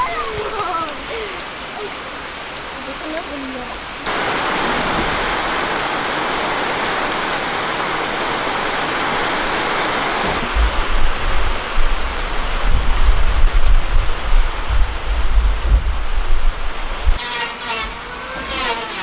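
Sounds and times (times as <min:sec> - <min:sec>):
hiss like rain: 0:00.0 - 0:17.2
low rumbling gusts: 0:03.6 - 0:17.2.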